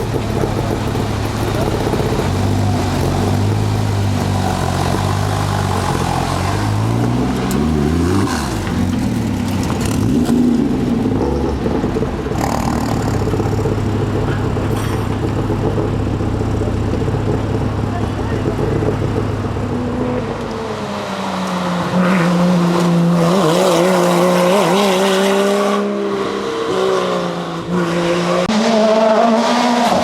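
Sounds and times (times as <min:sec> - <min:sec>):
rally car engine revving: 0:00.0 - 0:30.0.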